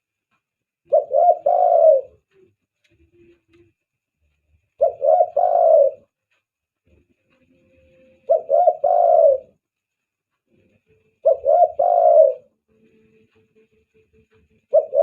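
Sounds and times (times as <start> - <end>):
dove cooing: 0.9 - 3.4, 4.8 - 6.1, 8.2 - 9.6, 11.2 - 12.6, 14.7 - 15.0.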